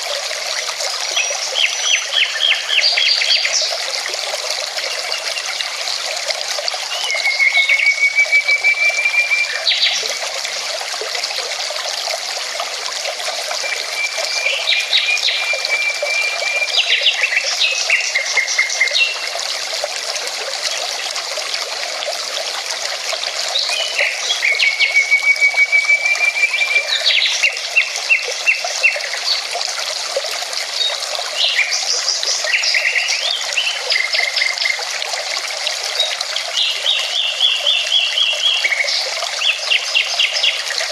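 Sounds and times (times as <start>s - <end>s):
songbird singing: 1.2s - 3.8s, 6.9s - 10.2s, 13.6s - 19.4s, 23.6s - 29.4s, 36.0s - 40.8s.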